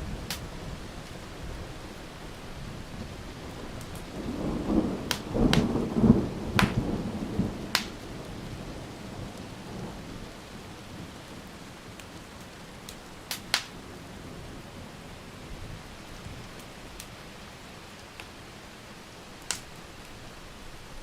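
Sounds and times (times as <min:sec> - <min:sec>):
thunder rumbling: 0:00.0 - 0:11.6
steady rain: 0:00.0 - 0:21.0
wood fire crackling: 0:00.0 - 0:21.0.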